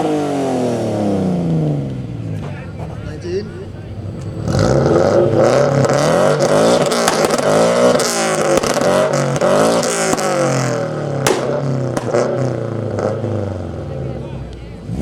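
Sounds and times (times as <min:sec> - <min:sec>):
car engine revving: 0:00.0 - 0:15.0
exhaust cracks and pops: 0:01.8 - 0:12.6.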